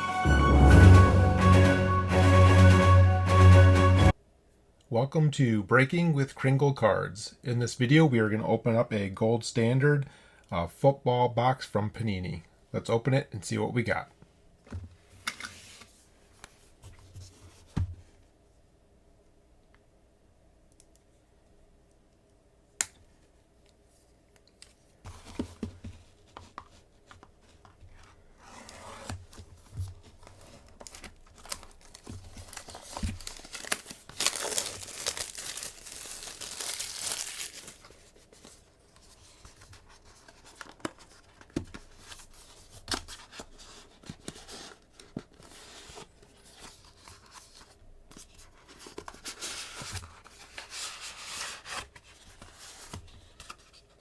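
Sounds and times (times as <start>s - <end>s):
packaging tearing and crinkling: 30.6s - 38.0s.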